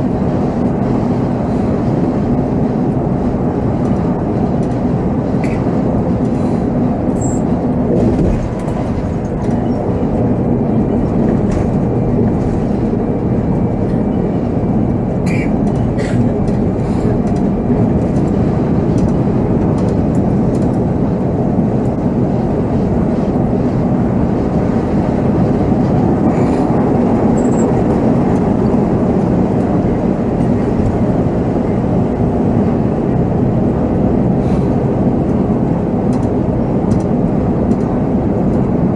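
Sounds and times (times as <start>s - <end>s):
diesel engine and road rumble: 0.0s - 38.9s
body rattles and clicks: 7.2s - 22.0s.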